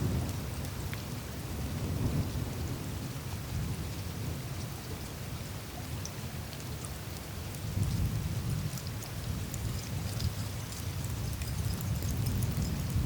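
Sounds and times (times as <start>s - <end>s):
ice ticking and crackling: 6.0s - 13.0s.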